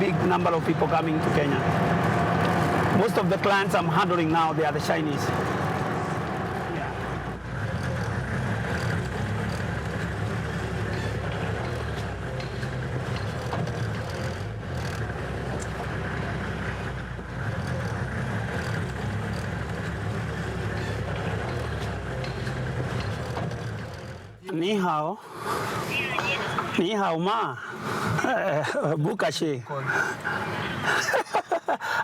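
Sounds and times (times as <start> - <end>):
vehicle engine and road noise: 0.0 - 31.5.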